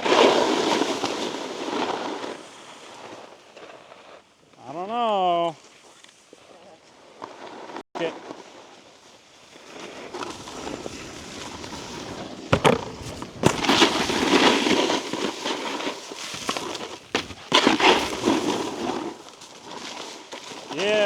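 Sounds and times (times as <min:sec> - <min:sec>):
snowboard scraping icy snow: 0:00.0 - 0:04.2, 0:06.9 - 0:21.0
snowboard knocking on bumps: 0:09.9 - 0:19.6.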